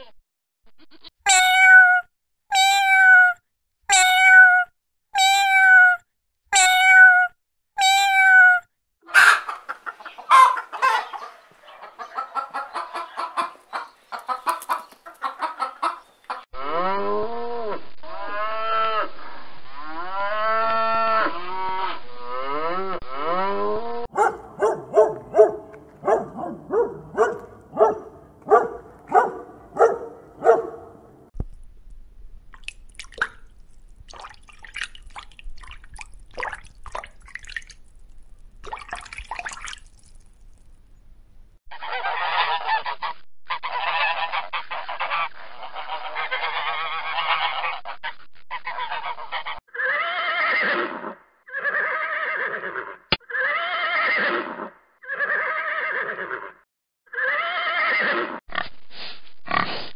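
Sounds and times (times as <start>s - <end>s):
cat meowing: 1.3s - 8.7s
hens clucking: 9.1s - 16.5s, 24.2s - 31.0s, 41.7s - 49.6s
rising and falling animal calls: 16.6s - 31.3s, 41.7s - 58.4s
cattle calling: 24.2s - 31.0s
faint water drips: 32.5s - 40.8s.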